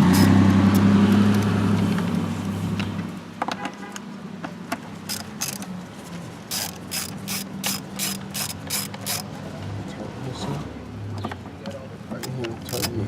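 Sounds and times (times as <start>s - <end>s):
low vehicle hum: 0.0s - 3.4s
ratchet wrench clicking: 0.1s - 0.8s, 5.0s - 5.7s, 6.5s - 9.3s, 12.6s - 13.0s.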